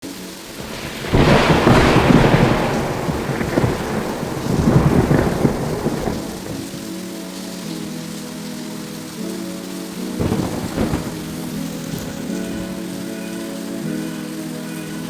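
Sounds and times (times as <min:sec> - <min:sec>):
rain: 0:00.0 - 0:15.0
thunder rolling: 0:00.5 - 0:07.2, 0:09.9 - 0:13.1.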